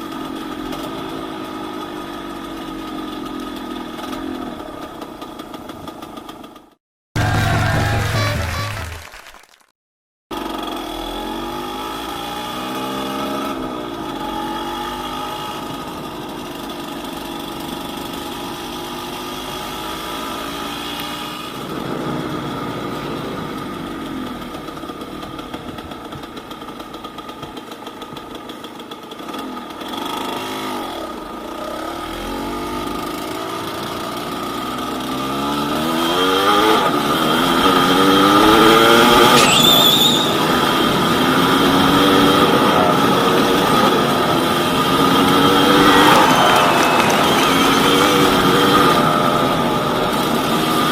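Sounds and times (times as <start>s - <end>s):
two-stroke motorcycle engine revving: 10.3s - 50.9s.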